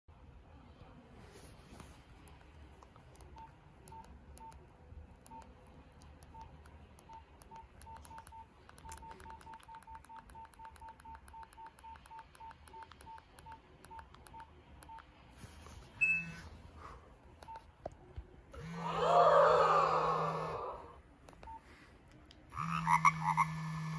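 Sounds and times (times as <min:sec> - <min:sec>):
phone keypad beeps: 0:03.3 - 0:04.6, 0:05.2 - 0:05.5, 0:06.2 - 0:15.1.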